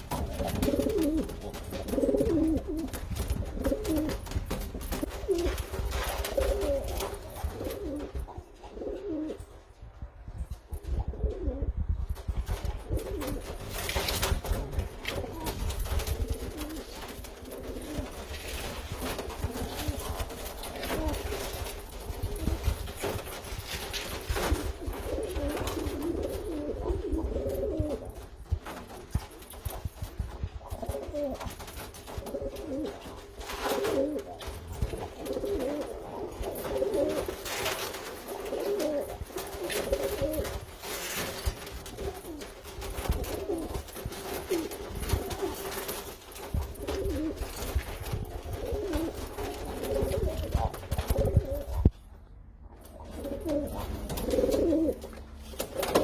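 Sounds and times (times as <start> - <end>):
pigeons cooing: 0.0 - 4.2, 6.3 - 9.4, 14.5 - 23.2, 24.2 - 28.1, 33.8 - 37.6, 38.2 - 40.6, 43.1 - 43.8, 48.4 - 51.9, 52.8 - 56.0.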